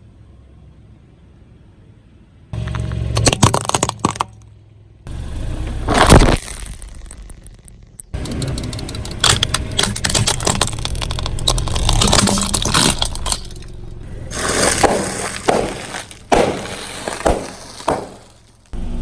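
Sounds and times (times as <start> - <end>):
low rumble of car: 0.0 - 19.0
tyre crushing brittle objects: 2.6 - 4.4, 5.8 - 18.8.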